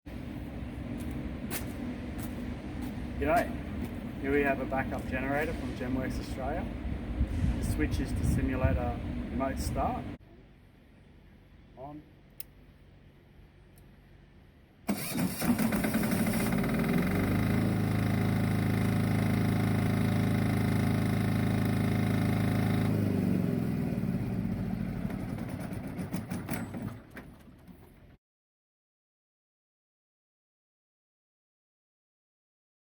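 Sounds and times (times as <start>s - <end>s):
diesel generator cranking and running: 14.8s - 28.2s.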